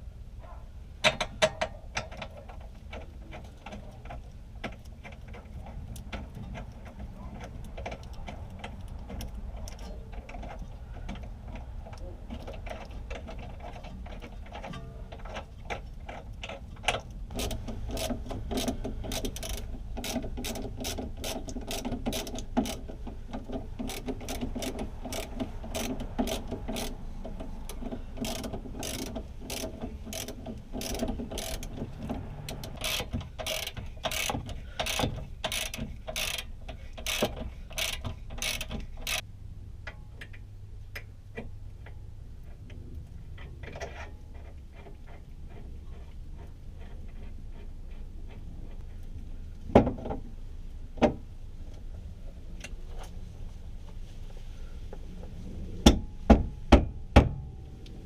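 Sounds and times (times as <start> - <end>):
ratchet wrench clicking: 15.2 - 31.9, 32.5 - 39.2.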